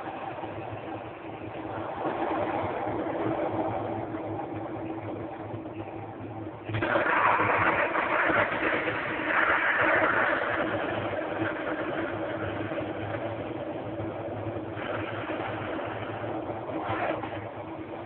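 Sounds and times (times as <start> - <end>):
steady low hum: 0.0 - 18.0
steam hissing: 6.7 - 17.9.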